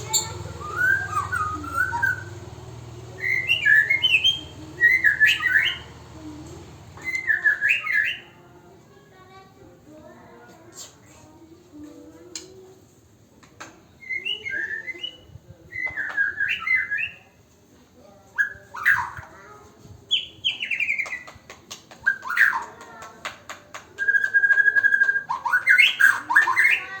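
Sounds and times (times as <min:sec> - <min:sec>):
bird whistled chirps: 0:00.0 - 0:02.4, 0:03.2 - 0:05.9, 0:07.0 - 0:08.3, 0:14.0 - 0:17.3.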